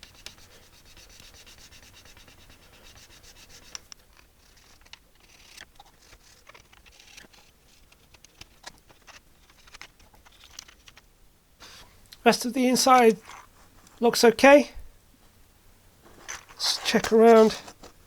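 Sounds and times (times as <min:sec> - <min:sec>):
scrubbing on plastic: 0:16.0 - 0:18.0.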